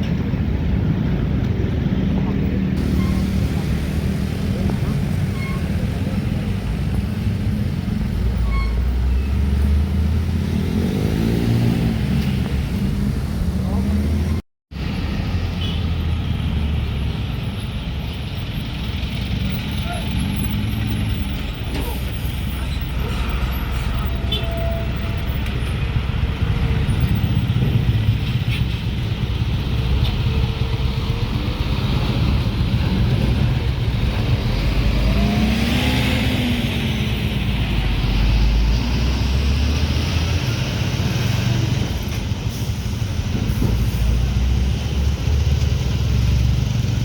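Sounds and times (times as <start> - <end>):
diesel trucks droning: 0.3 - 47.0.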